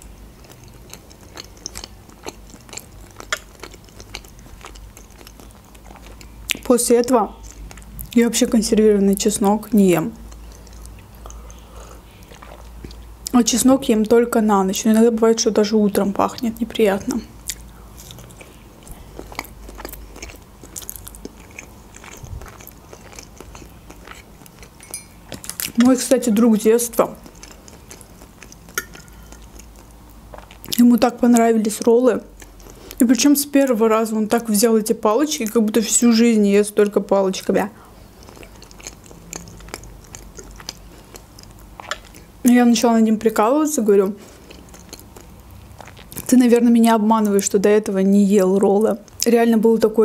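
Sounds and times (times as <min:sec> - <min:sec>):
person chewing food: 0:00.0 - 0:06.7, 0:10.2 - 0:13.1, 0:17.4 - 0:26.0, 0:27.1 - 0:30.8, 0:32.3 - 0:33.0, 0:37.9 - 0:42.4, 0:44.0 - 0:46.3.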